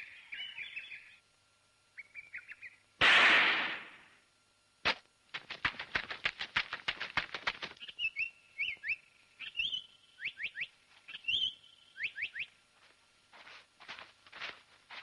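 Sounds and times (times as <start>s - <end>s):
bird whistled calls: 7.8s - 12.6s
soft footfalls: 12.8s - 15.0s.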